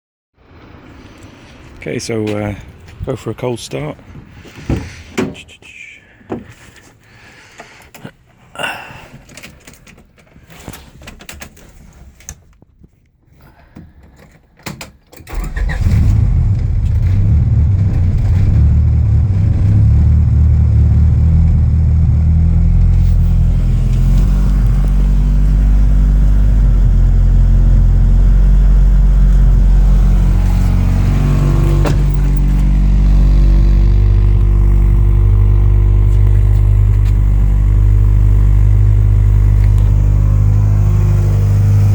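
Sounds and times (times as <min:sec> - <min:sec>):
car engine starting and idling: 0:15.2 - 0:41.9.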